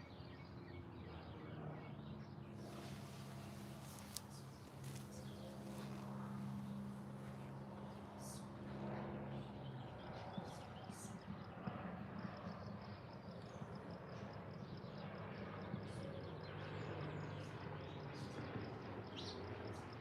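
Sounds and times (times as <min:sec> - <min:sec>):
birds chirping: 0:00.0 - 0:11.4
steady low hum: 0:02.6 - 0:09.8.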